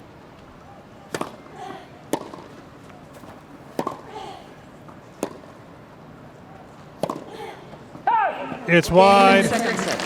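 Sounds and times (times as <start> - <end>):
tennis ball struck by racket: 1.1 - 1.4, 2.1 - 2.5, 3.1 - 4.1, 5.2 - 5.5, 7.0 - 7.3.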